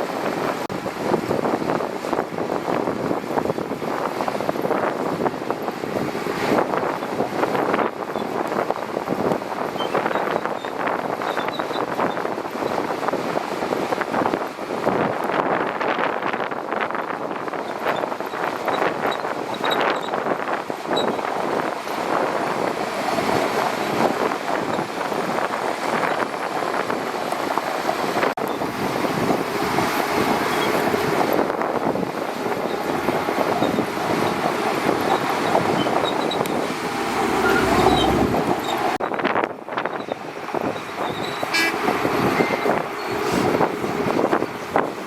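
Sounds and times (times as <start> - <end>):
bulldozer diesel engine running: 18.4 - 39.0, 40.0 - 45.0.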